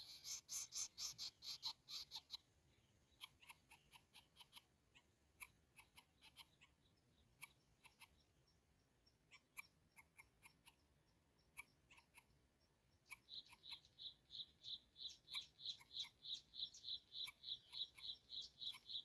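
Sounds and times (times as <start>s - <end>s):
chicks clicking calls: 0.0s - 19.0s.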